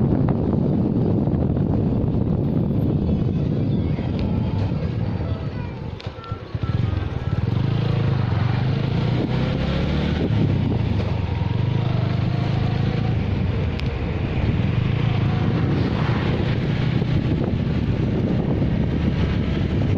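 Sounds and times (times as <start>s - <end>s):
engine running: 0.0s - 19.9s
rushing noise: 7.4s - 19.9s.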